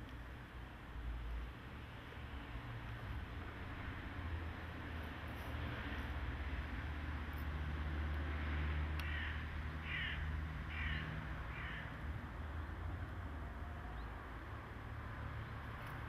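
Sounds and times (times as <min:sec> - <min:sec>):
bird harsh calls: 0:09.0 - 0:11.9.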